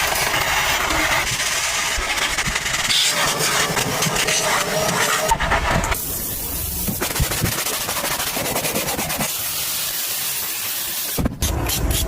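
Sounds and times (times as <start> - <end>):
pressure washer jet hissing: 6.0 - 12.0.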